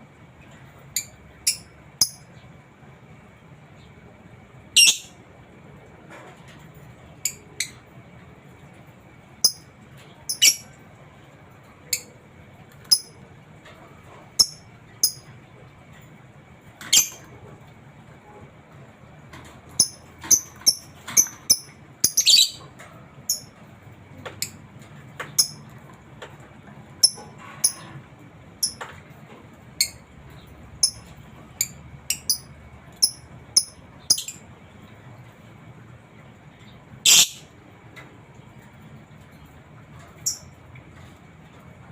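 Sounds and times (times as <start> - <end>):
lovebird chirping: 4.8 - 5.2, 10.3 - 10.7, 19.8 - 22.6, 31.6 - 34.4, 37.1 - 37.5.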